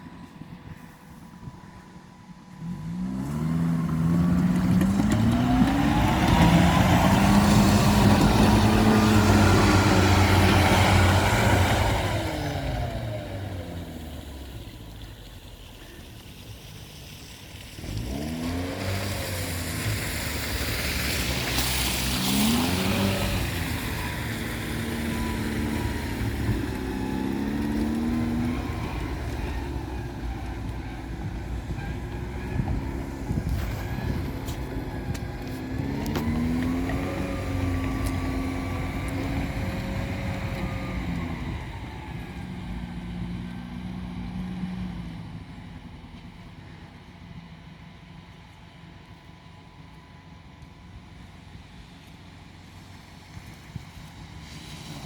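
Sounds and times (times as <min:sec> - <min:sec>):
all-terrain vehicle engine revving: 0:02.6 - 0:48.5.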